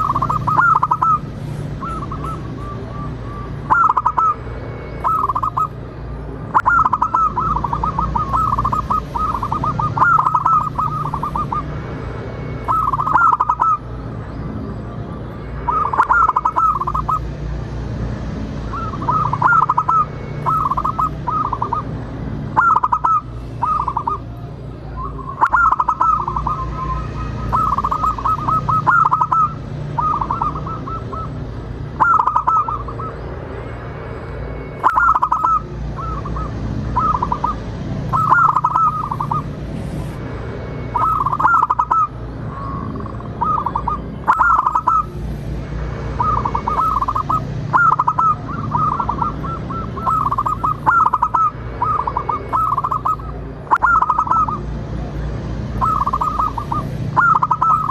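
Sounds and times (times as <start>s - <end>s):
dove cooing: 0.0s - 4.4s, 5.0s - 5.8s, 6.5s - 11.8s, 12.6s - 13.8s, 15.6s - 17.3s, 18.7s - 24.3s, 24.9s - 31.4s, 32.0s - 33.3s, 34.8s - 39.5s, 40.9s - 45.2s, 46.2s - 54.7s, 55.8s - 57.9s.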